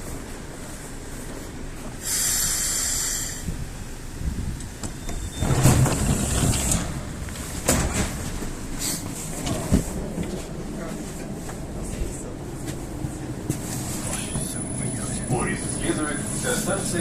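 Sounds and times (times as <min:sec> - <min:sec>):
train air hiss: 0:01.4 - 0:04.2, 0:08.8 - 0:09.2
knocks around sliding doors: 0:04.3 - 0:10.4.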